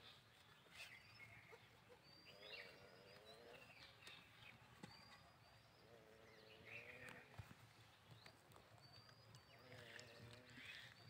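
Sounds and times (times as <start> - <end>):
small birds chirping: 0.0 - 11.0
faint low animal call: 4.6 - 7.4, 9.3 - 11.0.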